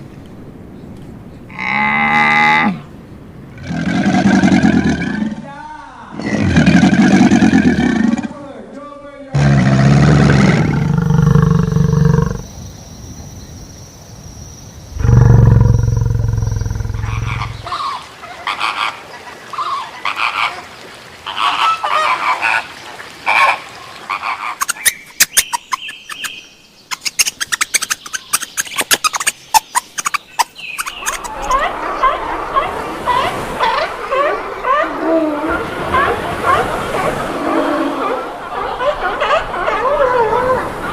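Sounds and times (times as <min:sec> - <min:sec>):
low-pitched animal calls: 0:09.4 - 0:12.5, 0:14.9 - 0:18.0, 0:24.1 - 0:40.9.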